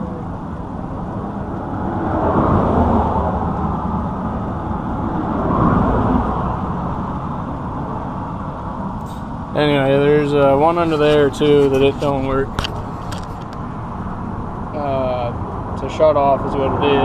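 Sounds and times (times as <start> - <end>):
road vehicles rumbling: 0.0 - 17.0.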